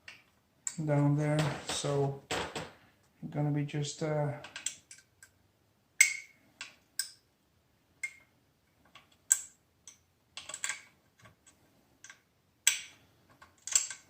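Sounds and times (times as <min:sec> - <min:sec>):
small parts clicking and tapping: 0:04.4 - 0:05.4, 0:08.0 - 0:14.0.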